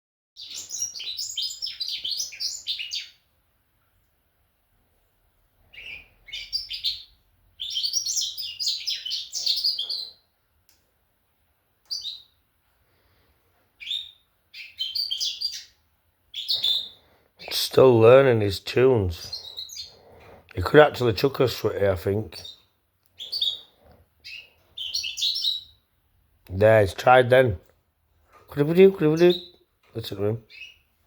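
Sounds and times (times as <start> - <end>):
bird twittering: 0.4 - 3.2, 5.7 - 10.3, 11.9 - 12.4, 13.8 - 17.9, 19.1 - 20.1, 22.3 - 25.9, 28.8 - 30.9.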